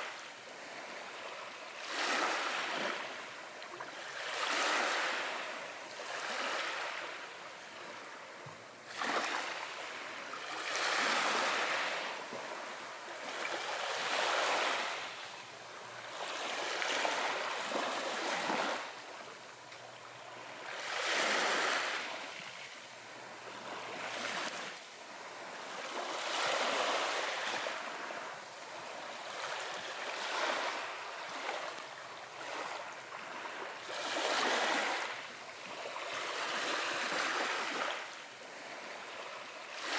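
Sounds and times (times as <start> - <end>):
small waves washing onto beach: 0.0 - 39.9.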